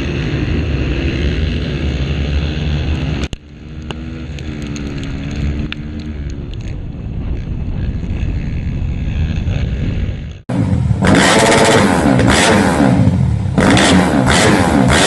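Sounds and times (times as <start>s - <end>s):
motorcycle engines running: 0.0s - 15.0s
wind on microphone: 3.9s - 10.4s.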